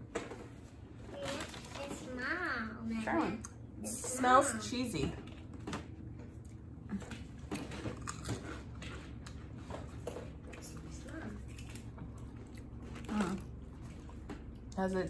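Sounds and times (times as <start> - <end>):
chewing crunchy snack: 6.4 - 14.8.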